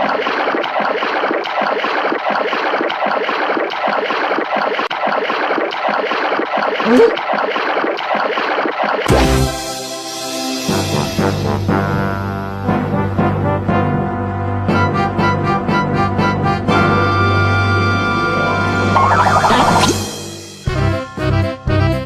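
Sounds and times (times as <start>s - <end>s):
water splashing and churning: 0.0s - 9.6s.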